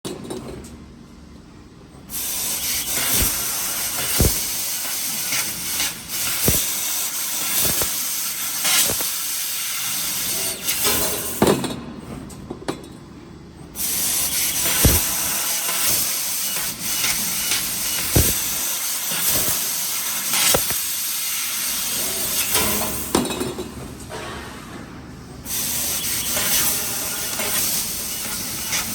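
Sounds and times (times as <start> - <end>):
laser cutter gas hiss: 2.1 - 11.4, 13.8 - 23.1, 25.5 - 28.9
sharp knocks: 18.0 - 18.6.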